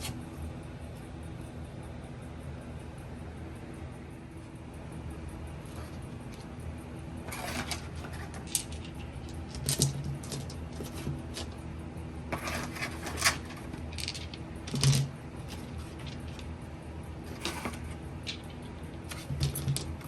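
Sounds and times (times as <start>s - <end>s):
steady low hum: 0.0s - 20.0s
clicks and knocks of objects handled: 7.3s - 11.6s, 12.3s - 16.6s, 17.3s - 20.0s.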